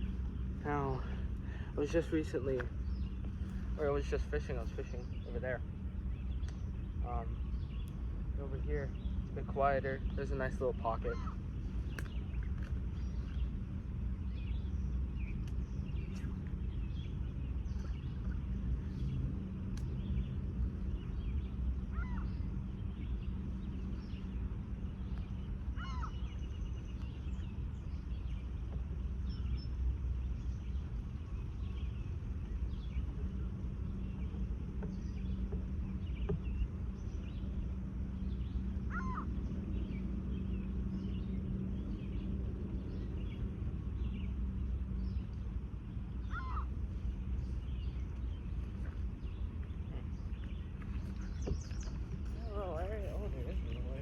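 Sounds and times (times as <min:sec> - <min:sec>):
industrial machinery hum: 0:00.0 - 0:54.0
short bird calls: 0:10.8 - 0:12.3, 0:21.8 - 0:23.0, 0:25.3 - 0:26.7, 0:38.3 - 0:41.3, 0:46.2 - 0:48.0.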